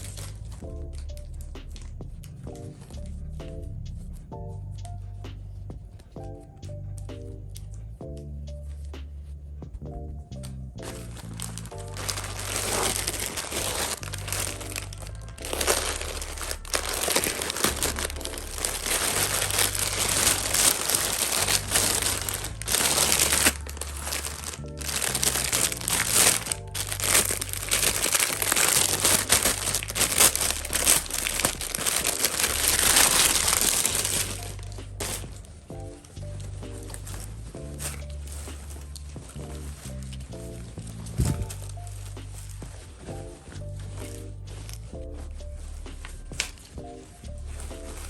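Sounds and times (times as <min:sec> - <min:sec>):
packaging crinkling: 0:00.0 - 0:00.6, 0:10.8 - 0:35.6
background music with bass line: 0:00.0 - 0:48.0.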